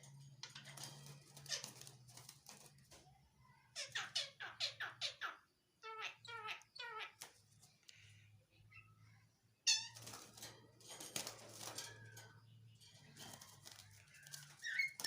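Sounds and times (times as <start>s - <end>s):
starling chirping: 0.0s - 2.4s, 3.5s - 7.4s, 11.2s - 15.0s.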